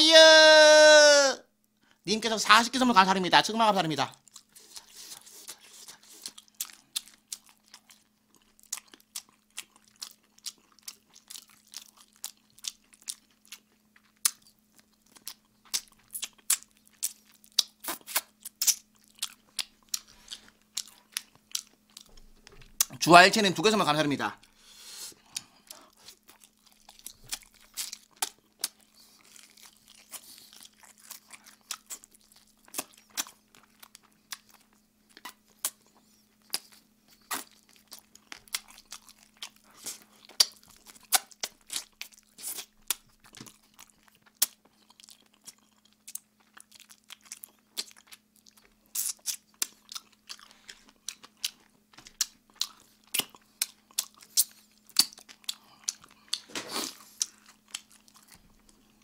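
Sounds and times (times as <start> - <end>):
fried chicken crunches: 5.9 - 22.9, 36.5 - 58.8.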